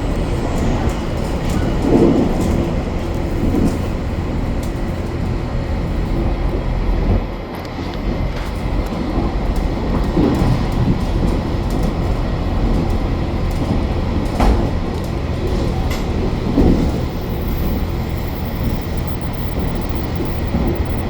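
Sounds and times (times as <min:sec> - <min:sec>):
train interior rumble: 0:00.0 - 0:21.0.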